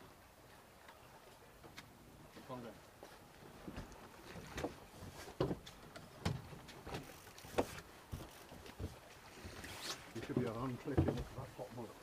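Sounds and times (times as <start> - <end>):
knocks and thumps on boat: 3.6 - 11.7.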